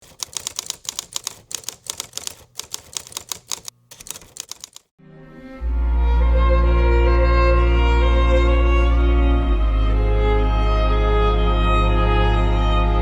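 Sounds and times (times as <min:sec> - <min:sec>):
keyboard typing clicks: 0:00.0 - 0:04.9
slow string music: 0:05.0 - 0:13.0.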